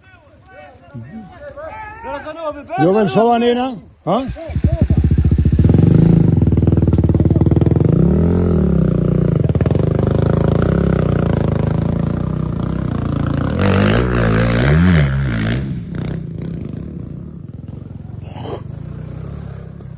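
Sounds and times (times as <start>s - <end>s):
motorcycle engine revving: 4.2s - 19.9s.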